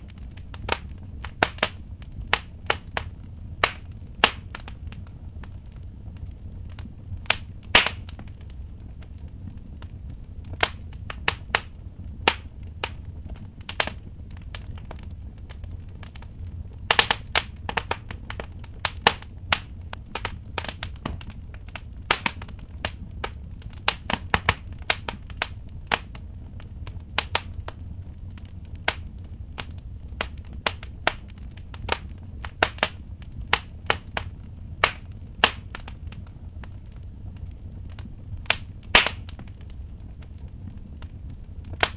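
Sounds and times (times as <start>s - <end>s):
low fire rumble: 0.0s - 41.9s
sharp pops of fire: 0.0s - 41.9s
wood fire crackling: 0.0s - 41.9s.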